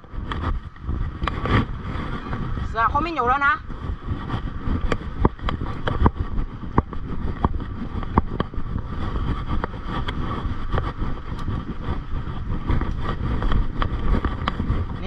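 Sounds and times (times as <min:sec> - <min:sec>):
bike rattling over bumps: 0:00.0 - 0:15.0
wind on microphone: 0:00.0 - 0:15.0.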